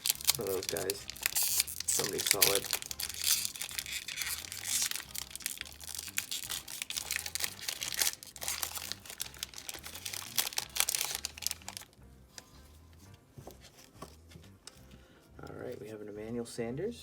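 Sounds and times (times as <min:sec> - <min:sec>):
plastic wrapper tearing and crumpling: 0:00.0 - 0:12.5.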